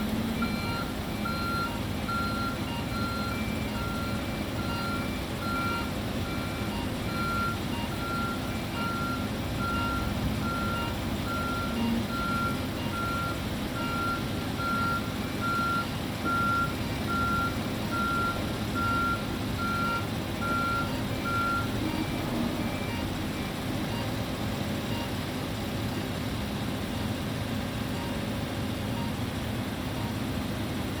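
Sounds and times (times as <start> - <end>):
reversing alarm beeping: 0.0 - 24.2, 27.9 - 29.3
diesel engine running: 0.0 - 31.0.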